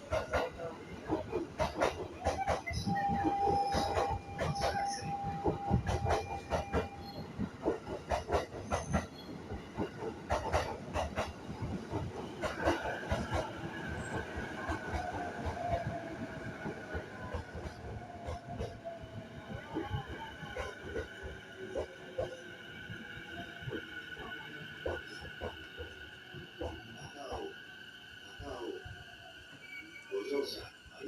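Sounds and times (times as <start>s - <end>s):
train wheels clacking over rail joints: 0.0s - 16.0s
train brake whine: 2.3s - 7.4s.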